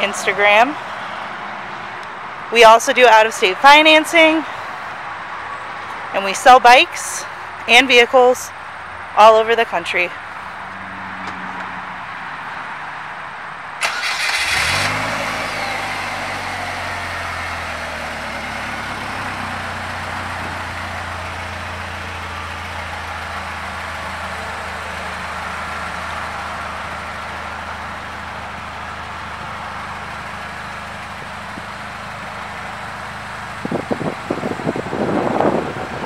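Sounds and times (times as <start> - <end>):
car engine idling: 12.9 - 36.0.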